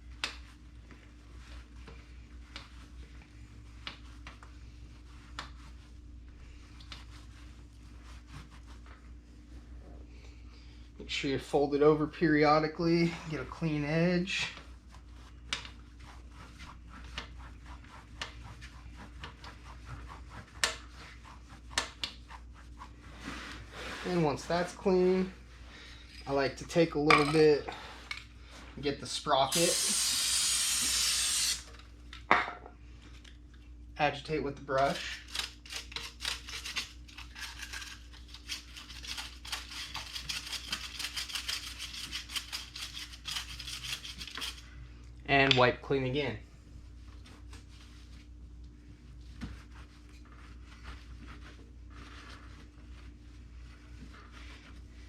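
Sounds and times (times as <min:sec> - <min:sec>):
towel rubbing on a chain: 0:00.5 - 0:09.2, 0:14.4 - 0:24.6, 0:46.8 - 0:55.0
brush scrubbing metal sprocket: 0:34.8 - 0:44.7.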